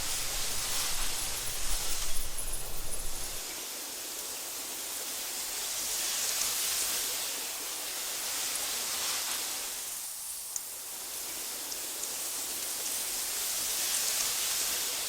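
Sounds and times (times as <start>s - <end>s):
breeze rustling through grass: 0.0s - 3.5s.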